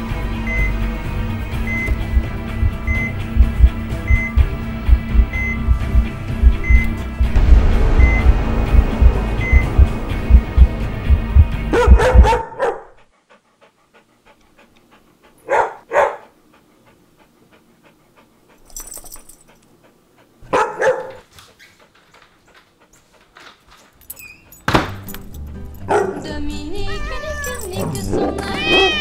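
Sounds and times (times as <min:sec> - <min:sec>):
music: 0:00.0 - 0:12.5, 0:24.8 - 0:29.0
faint steady ticking: 0:00.5 - 0:11.5
dog barking: 0:11.7 - 0:13.0, 0:15.4 - 0:16.4, 0:20.4 - 0:21.3, 0:25.8 - 0:26.3.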